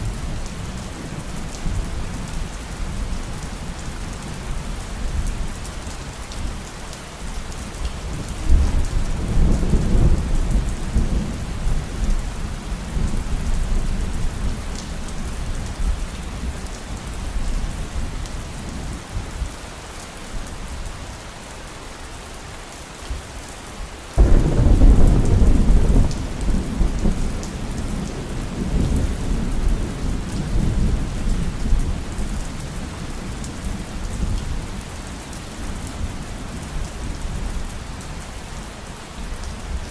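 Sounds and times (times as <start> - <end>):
heavy rain: 0.0 - 39.9
thunder rumbling: 24.2 - 32.1.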